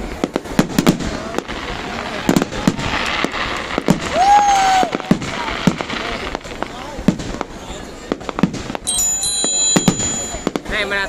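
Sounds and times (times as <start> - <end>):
firework shells bursting: 0.0 - 10.9
held tone: 8.8 - 10.6.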